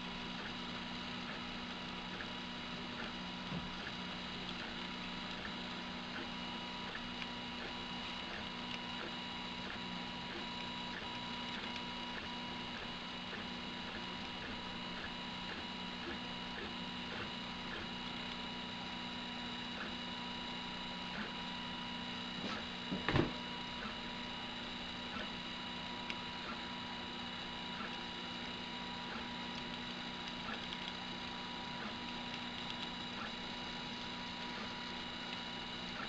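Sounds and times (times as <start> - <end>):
faint printer ticks: 0.1 - 22.8, 23.4 - 36.0
printer knock: 22.9 - 23.4.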